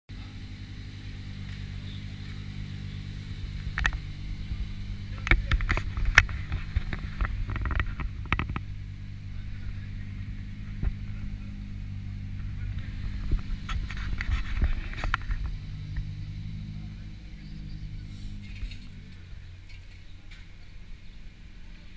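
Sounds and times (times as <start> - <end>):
car engine idling: 0.1 - 21.9
sharp knocks and rustles: 1.3 - 9.0, 12.2 - 16.4.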